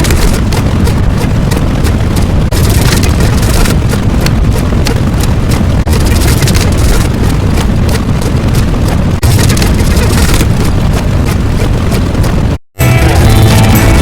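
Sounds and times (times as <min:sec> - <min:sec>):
loud rumbling noise with crackle: 0:00.0 - 0:14.0.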